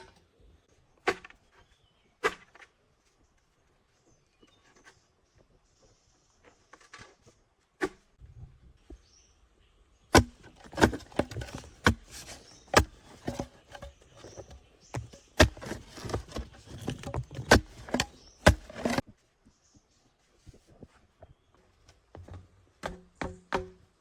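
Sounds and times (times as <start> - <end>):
rustling and scraping: 1.0 - 8.6, 10.2 - 22.7.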